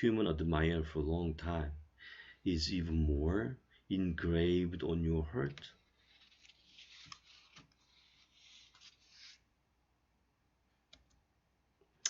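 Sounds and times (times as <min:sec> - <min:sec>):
soft clicks: 0:10.9 - 0:11.2.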